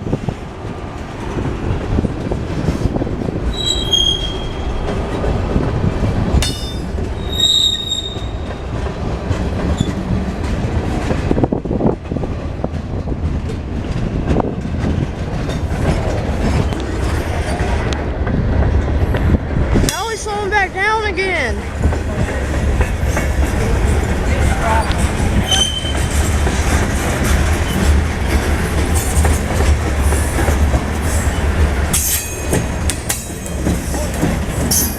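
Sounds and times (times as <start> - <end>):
freight train cars rumbling: 0.0 - 34.9
train wheel squeals: 3.5 - 4.9, 6.5 - 8.6, 9.7 - 10.0, 24.4 - 26.2, 31.2 - 32.7, 34.6 - 34.9.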